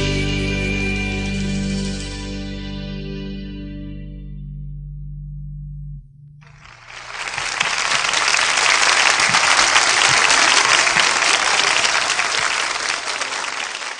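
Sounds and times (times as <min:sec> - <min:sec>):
music: 0:00.0 - 0:06.0
audience applauding: 0:06.5 - 0:13.9.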